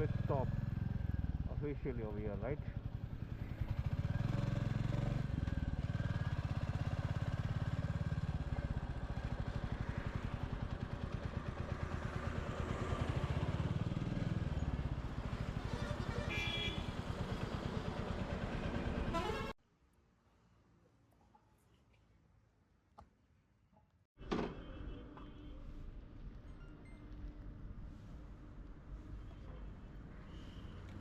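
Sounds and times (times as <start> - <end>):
motorcycle engine running: 2.3 - 19.4
vehicle horn honking: 15.7 - 16.9, 19.1 - 19.5.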